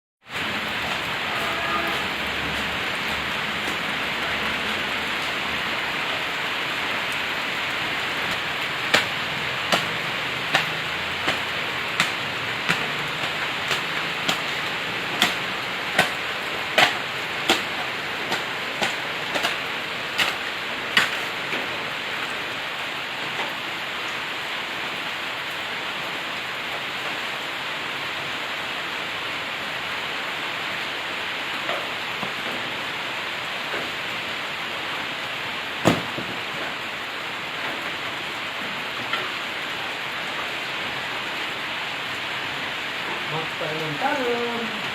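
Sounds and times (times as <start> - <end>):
steady rain falling: 0.2 - 44.9
sharp evenly spaced taps: 8.1 - 16.2, 16.8 - 19.6.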